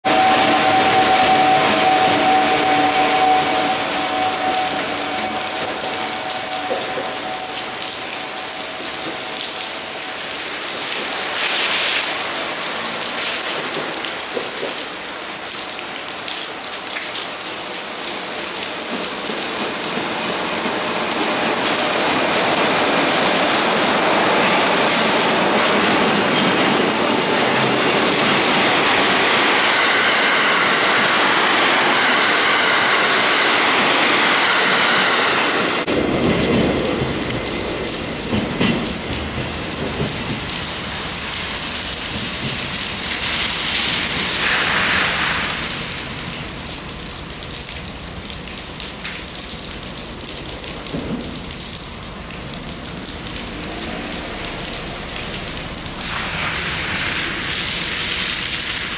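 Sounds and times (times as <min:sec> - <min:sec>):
freight train rolling past: 0:00.0 - 0:16.3, 0:17.2 - 0:49.1, 0:50.2 - 0:58.9
passenger train passing: 0:00.0 - 0:58.9.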